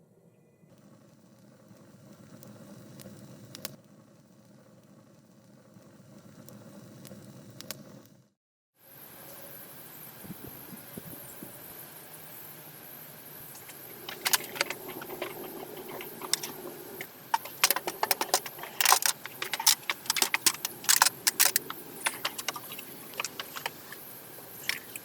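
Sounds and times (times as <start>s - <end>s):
sharp clicks and crackles: 0.7s - 4.9s, 13.6s - 25.0s.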